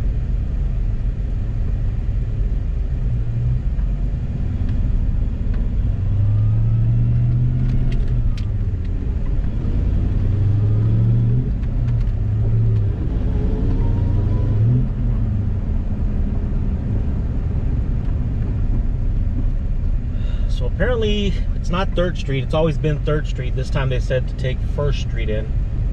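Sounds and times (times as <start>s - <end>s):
car engine and road noise: 0.0s - 25.9s.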